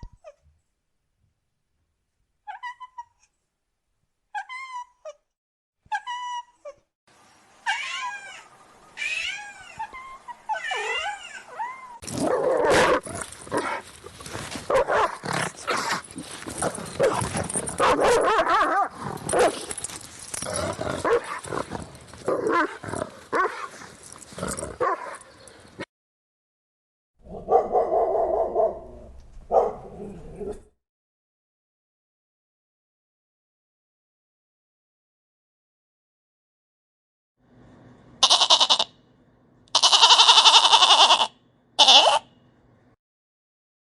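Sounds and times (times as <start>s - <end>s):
dog yelping: 9.2s - 13.8s, 17.0s - 19.6s
dog whining: 9.7s - 12.1s
dog barking rapidly: 14.7s - 15.2s, 17.0s - 19.6s, 21.0s - 21.4s, 27.3s - 28.8s, 29.5s - 30.0s.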